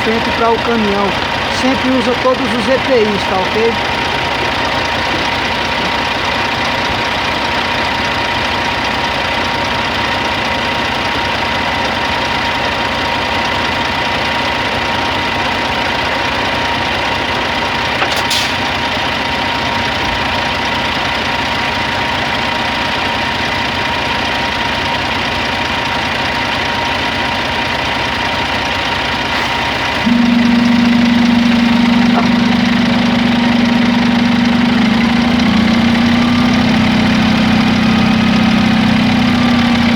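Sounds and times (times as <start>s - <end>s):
diesel truck engine idling: 0.0s - 39.9s
faint steady whine: 30.0s - 36.6s
steady low hum: 30.0s - 38.1s.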